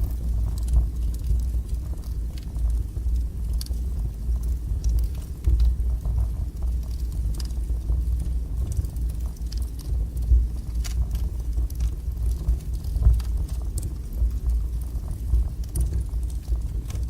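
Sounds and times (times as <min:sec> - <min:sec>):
fire crackling and popping: 0:00.0 - 0:17.0
wood fire burning: 0:00.0 - 0:17.0.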